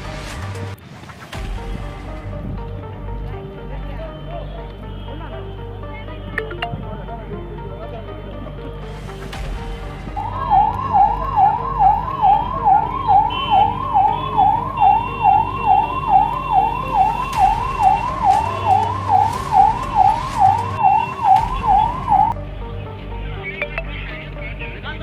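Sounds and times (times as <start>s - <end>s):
siren yelping: 10.1s - 22.4s.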